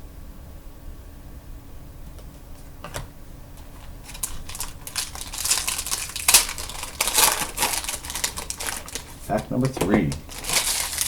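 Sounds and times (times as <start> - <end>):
card pack click: 3.6 - 11.0
wrapper crinkling and crackling: 3.6 - 11.0.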